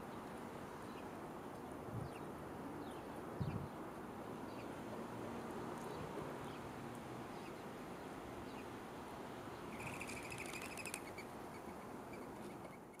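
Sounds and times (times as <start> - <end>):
faint bird chirps: 9.7 - 13.0.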